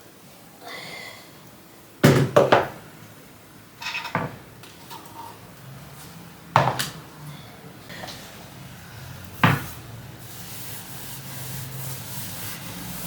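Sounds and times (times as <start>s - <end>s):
household objects knocking: 2.0s - 2.8s, 4.0s - 4.5s, 6.6s - 7.0s, 9.4s - 9.8s.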